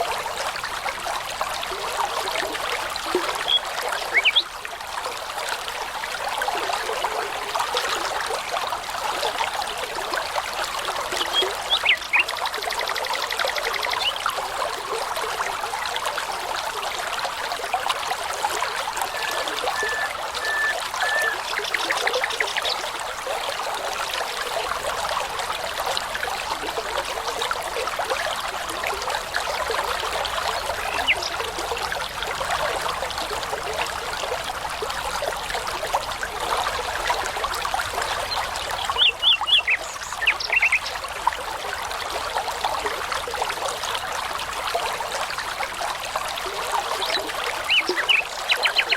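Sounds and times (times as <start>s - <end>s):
babbling brook: 0.0s - 48.9s
songbirds singing: 3.3s - 4.5s, 11.2s - 12.4s, 18.9s - 22.9s, 30.6s - 31.4s, 38.3s - 41.0s, 47.0s - 48.9s
loud high bird chirps: 3.4s - 3.6s, 4.2s - 4.5s, 19.1s - 21.9s
bird whistling and trilling: 3.4s - 4.5s, 11.3s - 12.2s, 19.0s - 21.9s.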